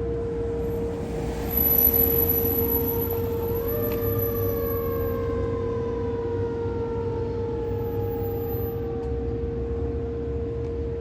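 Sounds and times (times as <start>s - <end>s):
low engine rumble: 0.0s - 6.7s
fire truck siren winding down: 0.5s - 9.4s.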